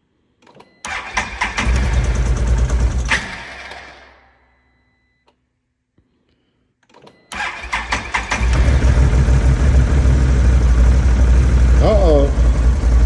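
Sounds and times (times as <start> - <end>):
atv engine cranking and running: 0.8 - 4.2, 7.3 - 13.0.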